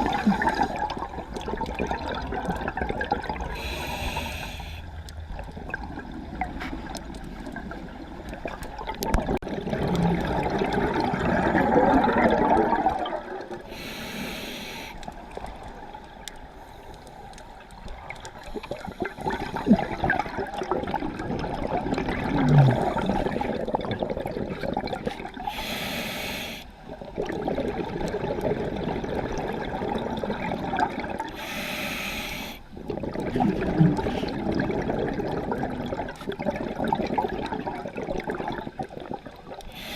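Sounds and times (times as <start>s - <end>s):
exhaust bubbles bubbling: 0.0s - 3.6s, 8.4s - 13.7s, 18.9s - 25.5s, 26.9s - 31.3s, 32.8s - 39.4s
regulator inhalation hiss: 3.6s - 4.8s, 13.7s - 15.0s, 25.5s - 26.7s, 31.4s - 32.6s.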